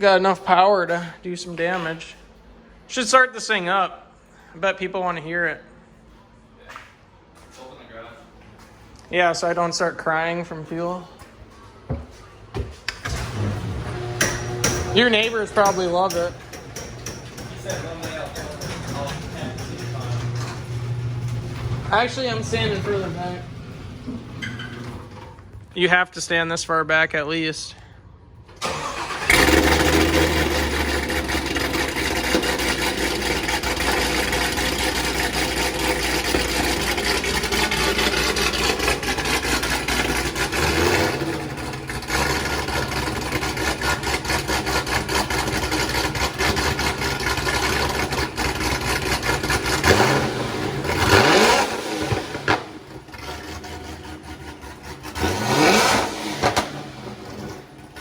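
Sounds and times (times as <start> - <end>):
car engine idling and revving: 13.0 - 25.7, 28.6 - 58.0.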